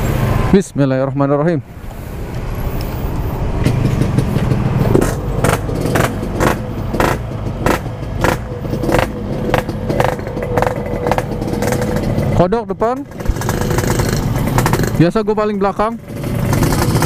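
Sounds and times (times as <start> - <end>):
motorcycle engine running: 3.5 - 17.0.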